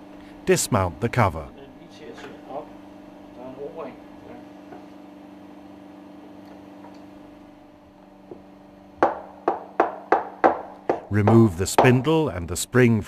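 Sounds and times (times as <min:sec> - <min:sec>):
steady low hum: 0:00.0 - 0:13.0
sharp ringing metal knocks: 0:09.0 - 0:12.3.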